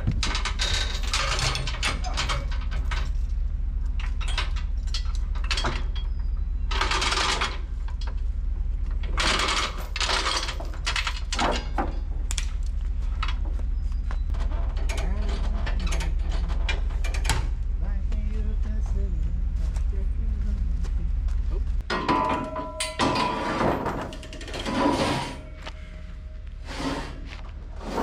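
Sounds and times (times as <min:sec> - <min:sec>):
metallic clicking and rattling: 0:00.0 - 0:08.2, 0:09.0 - 0:13.4, 0:21.9 - 0:25.6
engine running: 0:00.0 - 0:22.0
noisy scrapes: 0:24.5 - 0:28.0.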